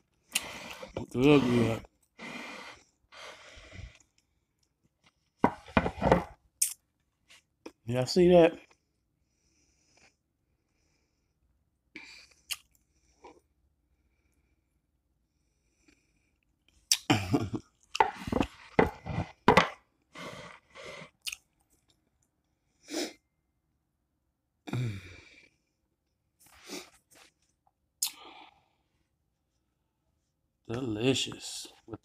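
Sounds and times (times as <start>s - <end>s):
person chewing food: 12.2s - 13.5s, 16.7s - 22.3s.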